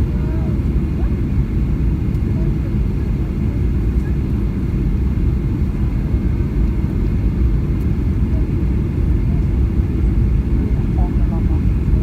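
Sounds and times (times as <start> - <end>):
jet engine low rumble: 0.0 - 12.0.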